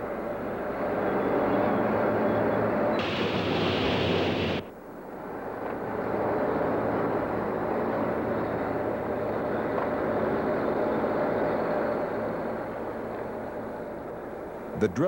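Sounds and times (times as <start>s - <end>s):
heavy machinery running: 3.0s - 4.6s.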